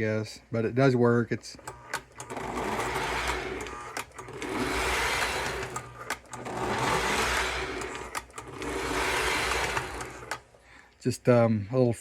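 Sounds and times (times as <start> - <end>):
toy train motor whirring: 1.6 - 10.6.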